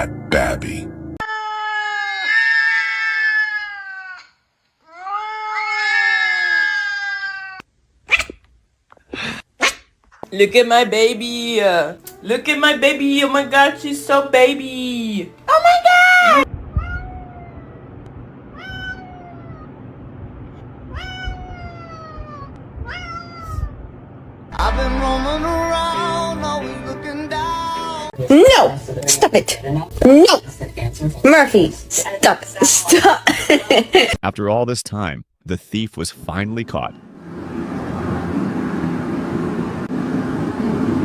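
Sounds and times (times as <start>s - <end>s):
cat yowling: 1.2s - 8.4s, 16.2s - 17.9s, 18.5s - 19.8s, 20.8s - 23.8s.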